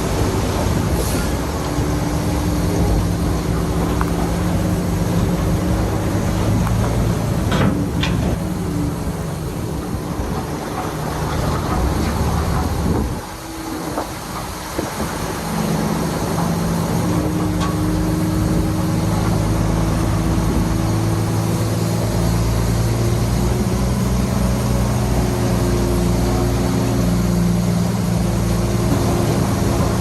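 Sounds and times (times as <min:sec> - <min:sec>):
heavy diesel engine running: 0:00.0 - 0:30.0
metal clanks: 0:07.4 - 0:09.0, 0:16.3 - 0:18.2.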